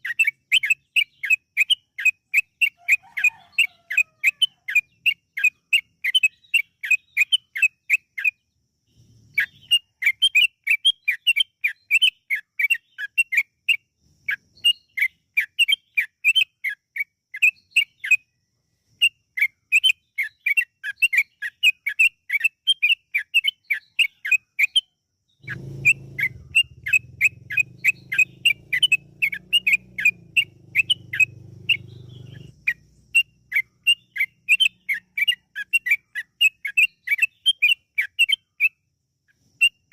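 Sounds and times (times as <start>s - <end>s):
bird whistling rapid notes: 25.4s - 38.4s.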